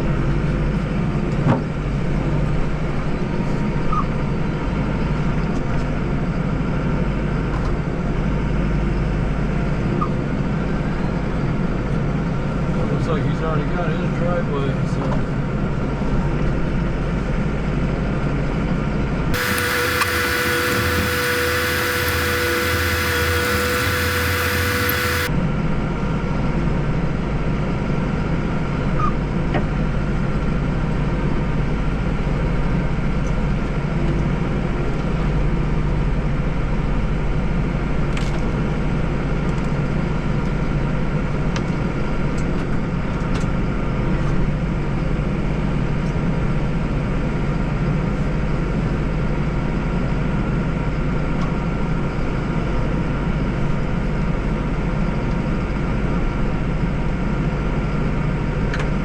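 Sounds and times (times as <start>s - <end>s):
bright steady whine: 19.4s - 25.3s
tractor engine running: 19.4s - 25.3s.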